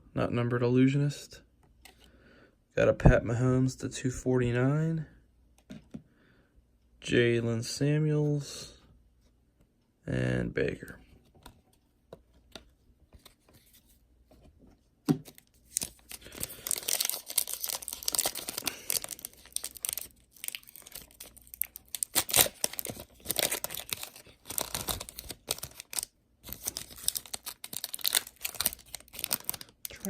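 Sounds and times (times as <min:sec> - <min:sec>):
wrapper crackling and tearing: 0:15.6 - 0:30.0.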